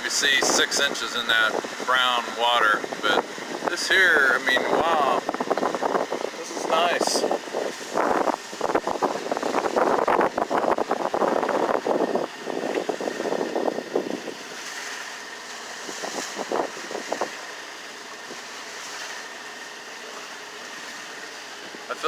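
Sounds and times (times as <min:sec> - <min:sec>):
water splashing: 0:00.0 - 0:22.0
wind rushing: 0:04.6 - 0:14.4.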